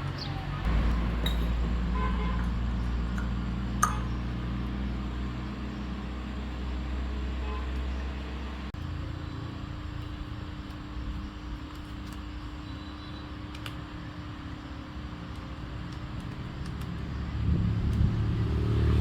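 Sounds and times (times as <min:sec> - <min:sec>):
higher hum: 0:00.0 - 0:08.7
water pump motor humming: 0:00.0 - 0:09.3.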